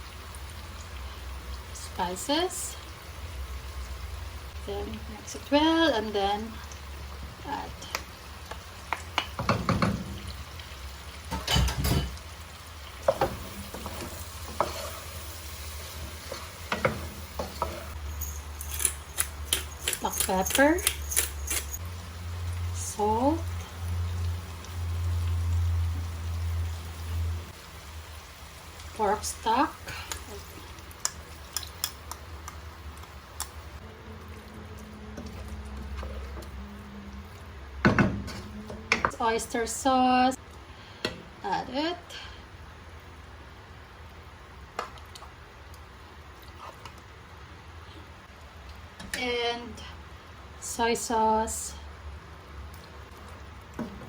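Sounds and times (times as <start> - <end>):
sauce sizzling in a pan: 0.0 - 11.5, 12.1 - 18.0, 21.8 - 36.5
utensils clicking against pot: 17.4 - 21.8, 31.0 - 33.6.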